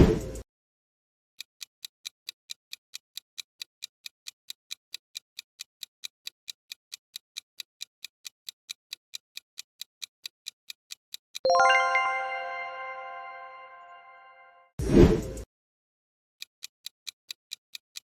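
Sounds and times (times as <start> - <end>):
clock ticking: 1.6 - 13.8.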